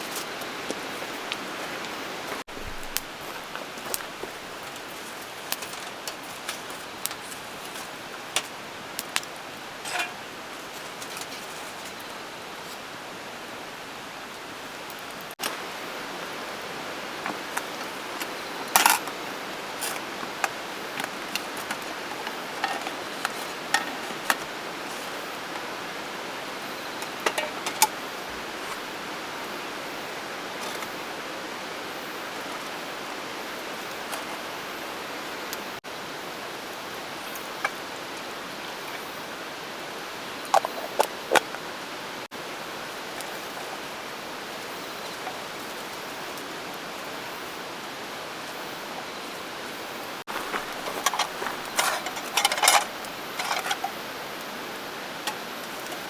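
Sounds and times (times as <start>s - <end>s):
rain hiss: 0.0s - 56.0s
camp cookware clinking: 0.1s - 12.9s, 16.5s - 35.7s, 36.8s - 47.4s, 50.3s - 56.0s.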